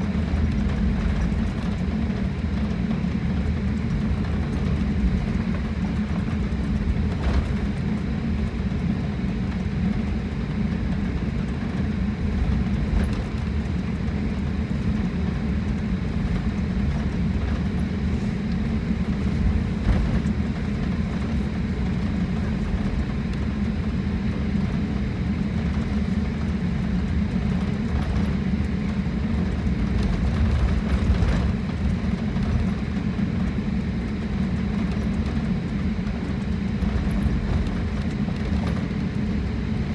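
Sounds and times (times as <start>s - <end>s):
airliner cabin rumble: 0.0s - 39.9s.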